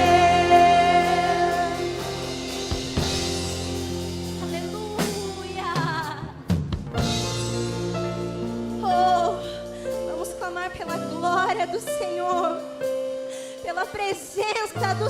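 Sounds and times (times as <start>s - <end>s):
person singing: 0.0s - 2.4s
drum hits: 0.0s - 8.1s
worship band music: 0.0s - 15.0s.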